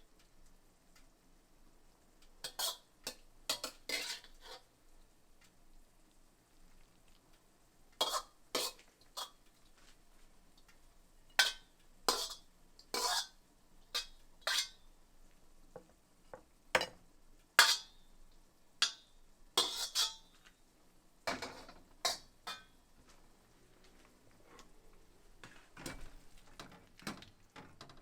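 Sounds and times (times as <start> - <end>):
dishes and utensils clattering: 2.5 - 4.6, 16.8 - 17.0, 19.6 - 20.4, 21.3 - 22.8.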